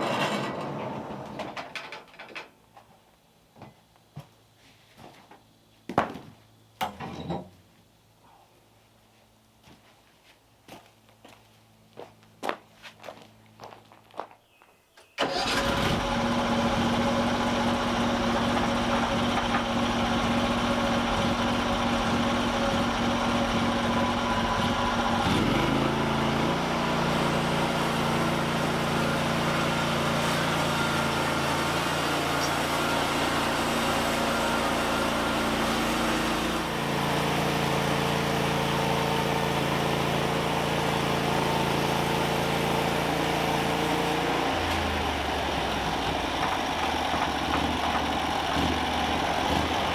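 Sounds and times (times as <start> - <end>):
small engine running: 15.2 - 49.9.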